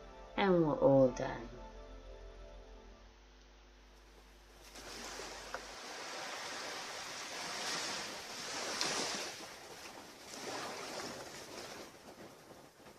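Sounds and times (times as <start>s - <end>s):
surf washing onto beach: 4.6s - 12.9s.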